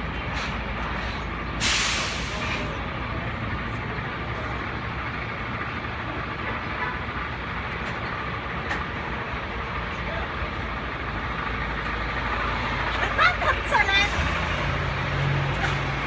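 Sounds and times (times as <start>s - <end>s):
truck engine running: 0.0s - 16.0s
air brake hiss: 1.6s - 2.7s.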